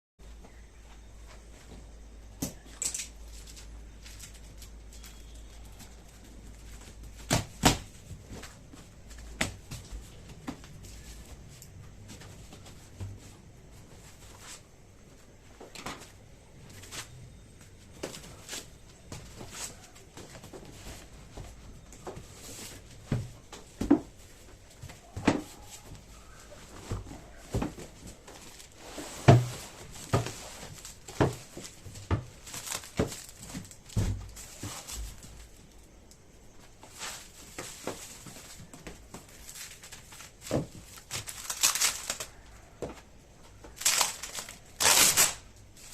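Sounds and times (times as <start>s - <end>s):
packaging rustling: 25.6s - 35.6s, 37.0s - 42.8s, 43.6s - 45.9s.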